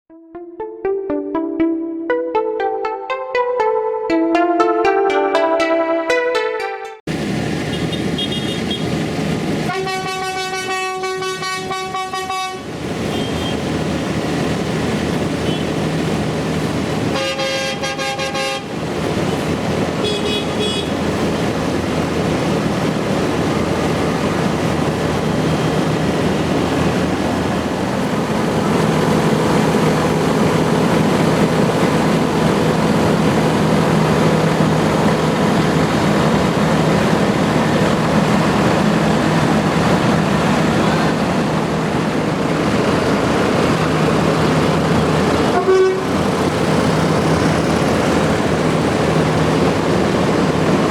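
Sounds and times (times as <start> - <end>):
diesel tractor engines running: 7.1 - 10.6, 12.6 - 18.0, 18.6 - 50.9
horn blowing: 9.7 - 12.6, 45.5 - 46.1.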